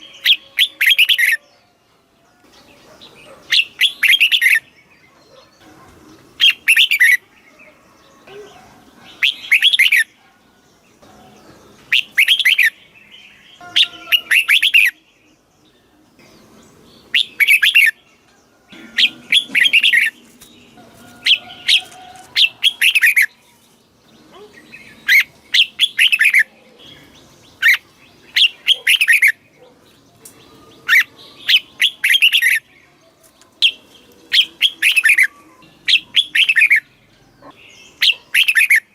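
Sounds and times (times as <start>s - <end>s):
bulbul singing: 0.0s - 1.7s, 2.4s - 38.9s.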